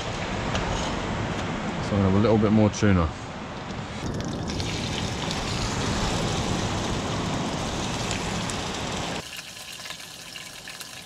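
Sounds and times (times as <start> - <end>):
fish frying in hot oil: 4.4 - 11.0.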